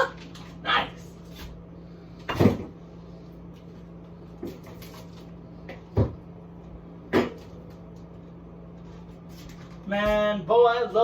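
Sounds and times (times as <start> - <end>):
low steady hum: 0.0 - 11.0
items knocking and thumping: 2.2 - 2.8, 4.4 - 6.3, 7.1 - 7.8.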